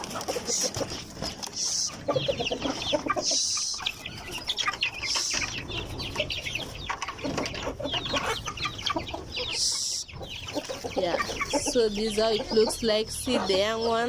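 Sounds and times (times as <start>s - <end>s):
chicks peeping: 0.0s - 14.0s
hens clucking: 0.0s - 14.0s.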